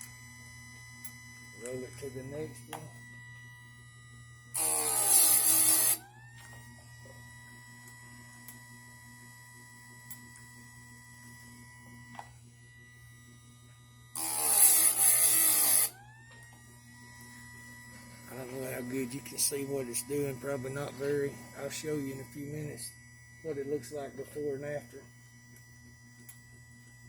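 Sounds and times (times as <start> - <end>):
sharpener motor humming: 0.0 - 27.0
grinding wheel on chain: 4.6 - 6.0, 14.2 - 15.9.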